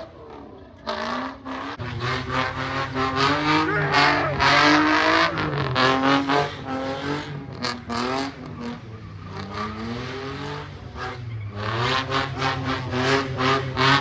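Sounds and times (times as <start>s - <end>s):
car engine revving: 0.0s - 14.0s
tyres squealing: 3.3s - 5.8s.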